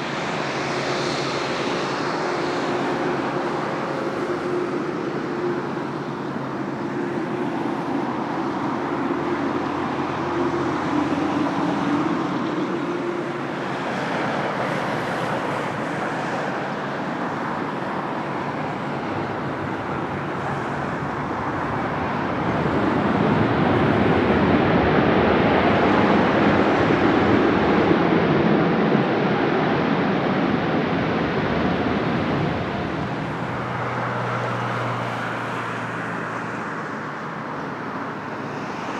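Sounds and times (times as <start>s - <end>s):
jet airliner engines roaring: 0.0s - 38.9s.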